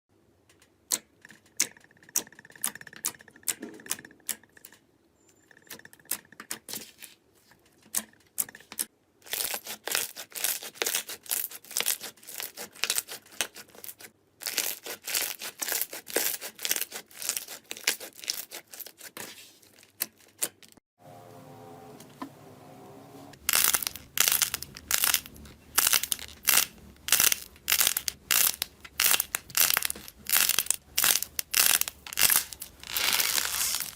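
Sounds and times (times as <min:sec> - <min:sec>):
slime clicking and crackling: 0:23.4 - 0:33.9.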